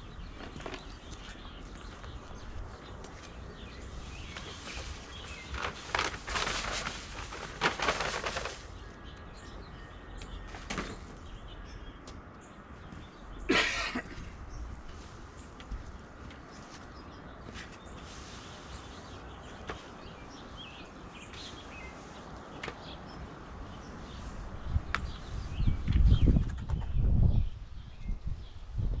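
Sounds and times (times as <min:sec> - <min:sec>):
broom sweeping sand on pavers: 0:02.9 - 0:07.6, 0:14.8 - 0:25.7.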